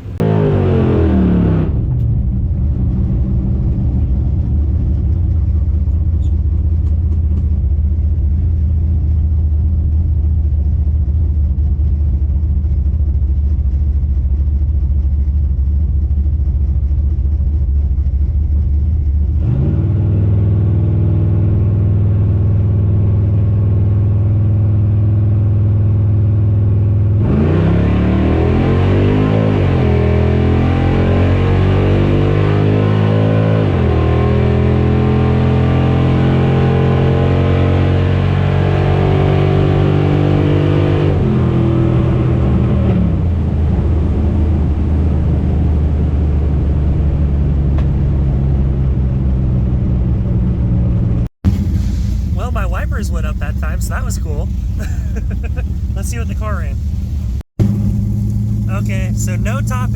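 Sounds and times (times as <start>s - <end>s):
car engine running and revving: 0.0s - 59.9s.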